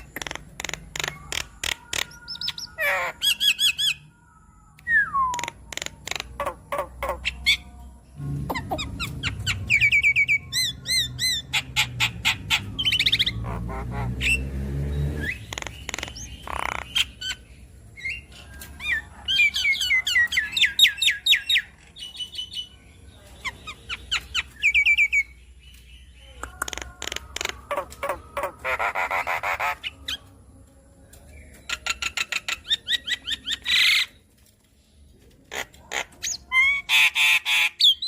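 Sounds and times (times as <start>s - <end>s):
bird chattering and squawking: 0.0s - 4.1s, 5.3s - 7.8s, 8.5s - 14.5s, 15.2s - 22.7s, 26.3s - 30.3s, 31.6s - 34.2s, 35.4s - 38.0s.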